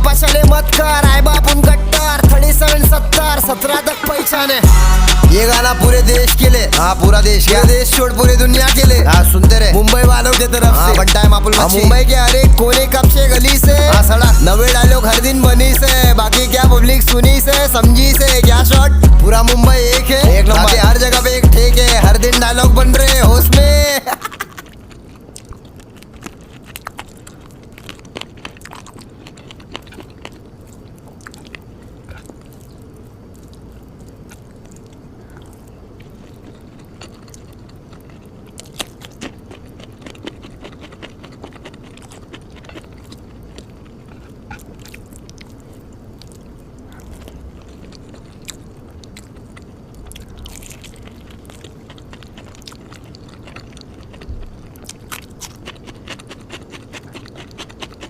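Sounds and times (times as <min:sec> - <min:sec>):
person chewing and biting: 0:00.0 - 0:58.0
wet mouth clicks: 0:05.1 - 0:23.7, 0:24.3 - 0:58.0
small crunches: 0:24.0 - 0:58.0.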